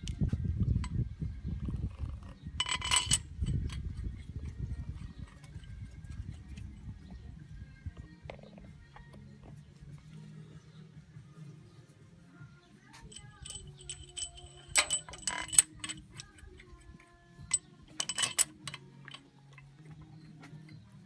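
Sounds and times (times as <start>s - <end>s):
metal tools clinking: 2.0s - 6.6s, 13.0s - 20.7s.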